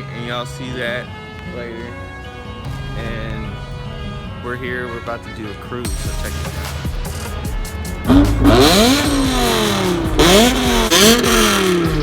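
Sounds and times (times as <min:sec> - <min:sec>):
car engine revving hard: 0:07.9 - 0:12.0.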